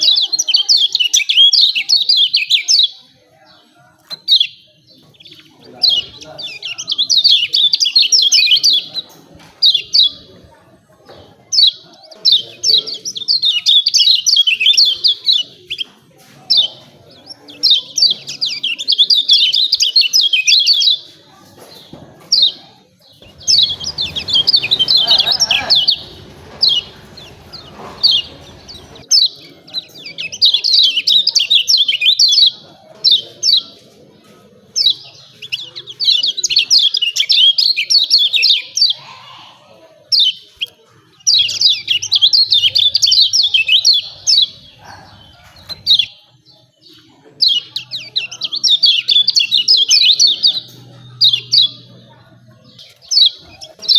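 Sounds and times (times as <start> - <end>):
bird chirping calls: 16.5 - 33.9, 34.8 - 53.9
low rumbling noise: 23.2 - 29.0.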